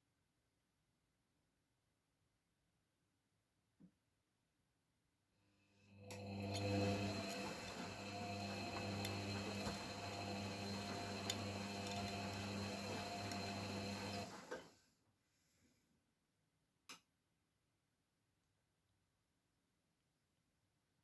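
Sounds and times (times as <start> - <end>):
washing machine humming: 6.0 - 14.8.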